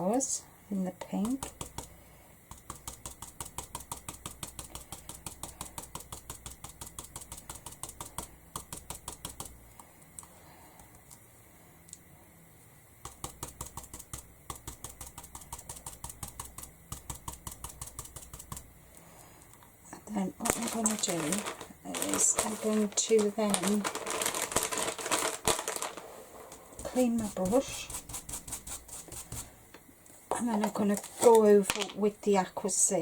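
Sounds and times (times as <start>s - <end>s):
brush tapping on canvas: 1.1s - 9.6s, 13.0s - 18.7s, 26.8s - 29.5s.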